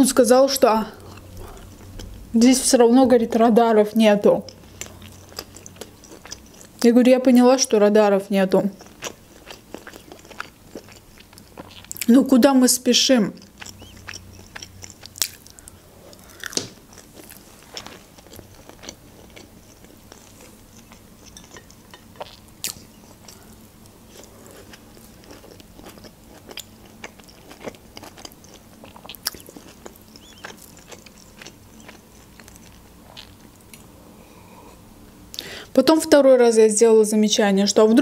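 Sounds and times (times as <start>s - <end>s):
person chewing crunchy food: 1.0s - 2.3s, 4.5s - 6.8s, 8.7s - 12.1s, 13.4s - 33.9s.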